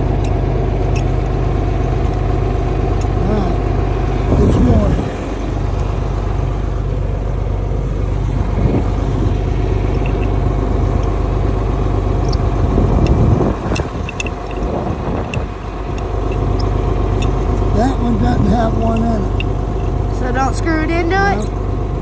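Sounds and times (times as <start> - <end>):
engine idling: 0.0 - 22.0
small clicks and knocks: 13.0 - 17.4.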